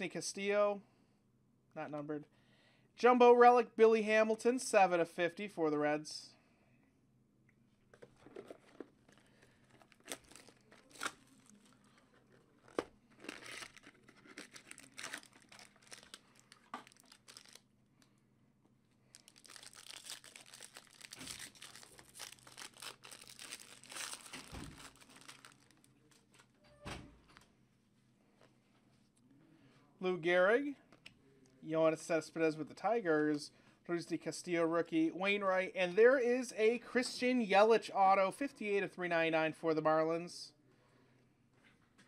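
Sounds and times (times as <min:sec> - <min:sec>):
wrappers tearing and crinkling: 0:08.4 - 0:17.6, 0:19.1 - 0:25.9.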